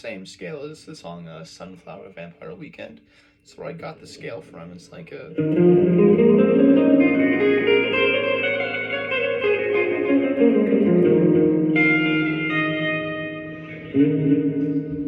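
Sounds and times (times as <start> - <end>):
electric guitar with reverb: 3.7 - 15.0.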